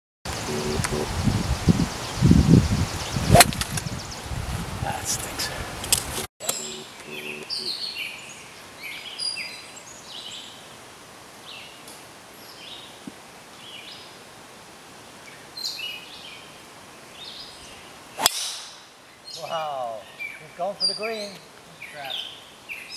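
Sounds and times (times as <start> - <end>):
birds chirping: 0.3 - 10.7, 15.2 - 22.9
steady outdoor hiss: 0.3 - 22.9.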